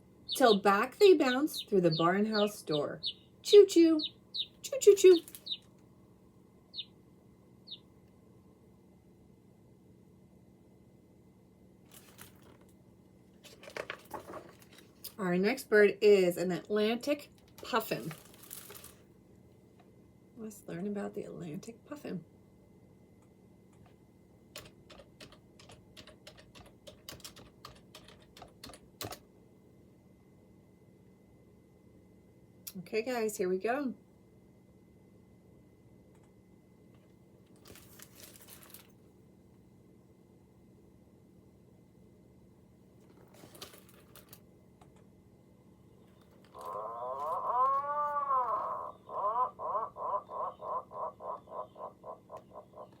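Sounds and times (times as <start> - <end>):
computer keyboard typing: 24.6 - 29.2
puffin growling call: 46.5 - 53.0.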